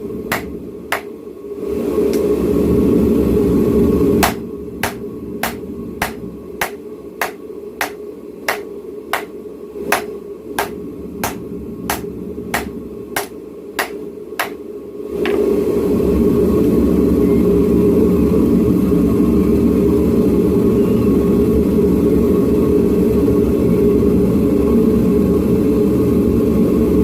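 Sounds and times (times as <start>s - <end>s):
loud rushing hum: 0.0s - 20.4s
steady machine hum: 0.0s - 27.0s
hammer blows forging metal: 0.3s - 1.2s, 4.2s - 14.6s.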